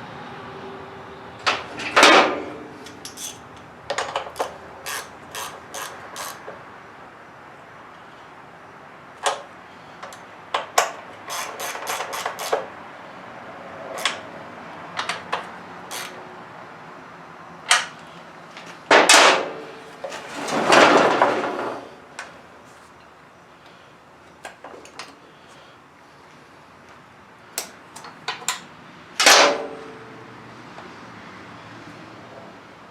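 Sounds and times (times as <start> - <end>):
tools and metal parts clicking: 1.4 - 6.6, 9.2 - 12.7, 13.9 - 14.3, 15.0 - 16.2, 27.6 - 29.7
scraping rustle: 20.0 - 23.0.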